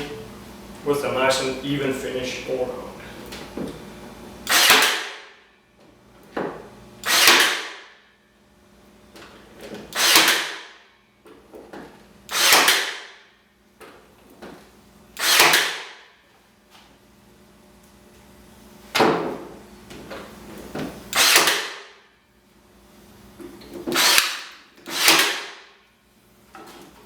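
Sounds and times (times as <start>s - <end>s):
nail gun firing: 4.4s - 5.4s, 7.0s - 8.0s, 9.9s - 10.8s, 12.3s - 13.2s, 15.2s - 16.1s, 21.1s - 22.0s, 23.9s - 25.8s.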